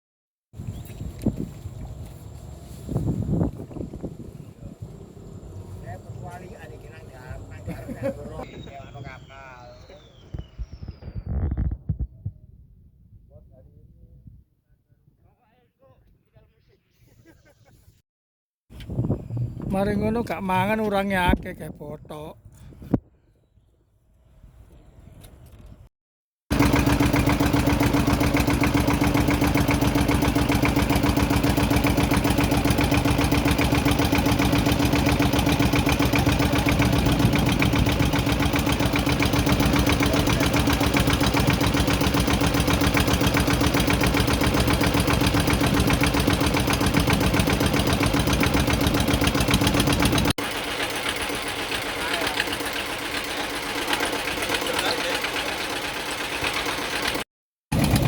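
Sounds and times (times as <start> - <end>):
small engine running: 0.6 - 10.5, 26.5 - 58.0.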